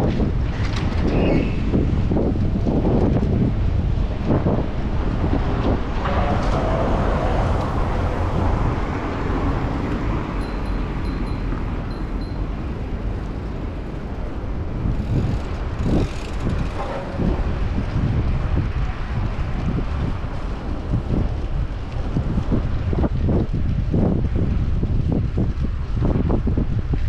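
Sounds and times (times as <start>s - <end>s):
passing traffic: 0.0s - 24.6s
wind rumble on microphone: 0.0s - 27.0s.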